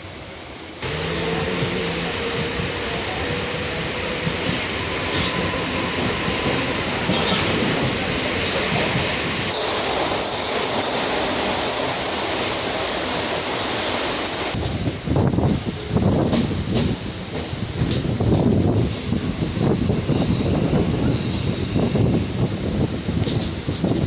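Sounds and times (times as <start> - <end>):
train rumbling: 0.0 - 24.0
wheels and brakes squealing: 0.8 - 3.4, 8.4 - 14.6, 18.8 - 22.2.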